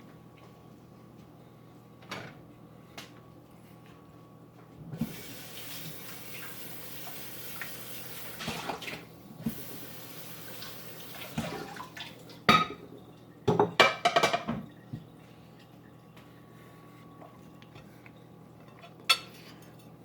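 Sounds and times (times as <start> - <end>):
water running: 4.9 - 16.4
dishes clattering: 12.5 - 14.7, 18.6 - 19.9.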